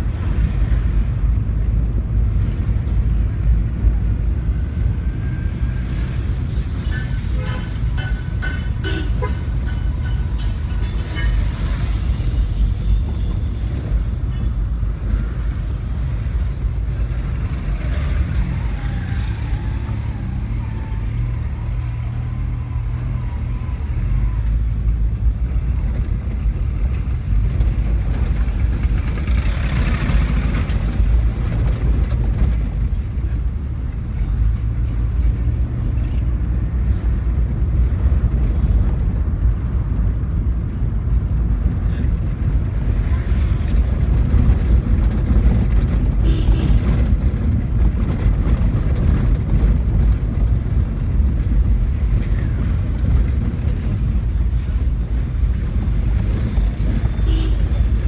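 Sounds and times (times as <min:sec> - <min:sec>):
car engine and road rumble: 0:00.0 - 0:58.0
passing vehicle hiss: 0:04.5 - 0:24.9.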